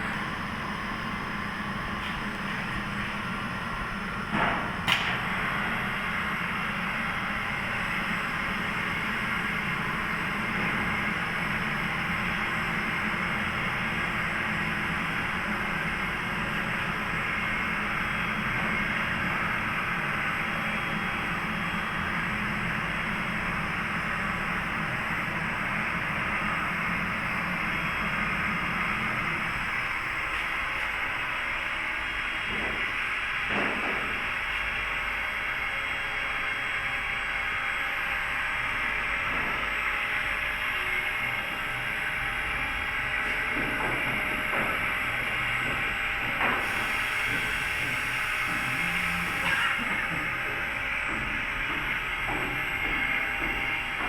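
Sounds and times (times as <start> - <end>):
machine whirring: 39.1 - 54.0.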